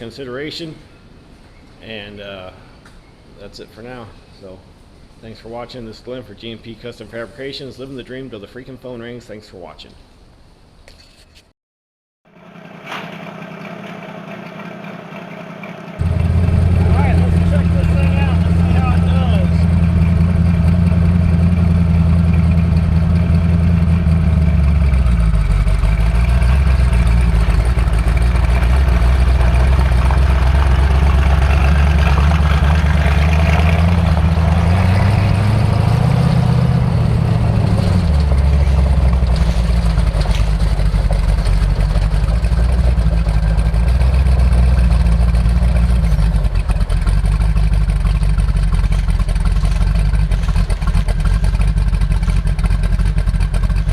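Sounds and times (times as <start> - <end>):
car engine running: 12.3 - 53.9.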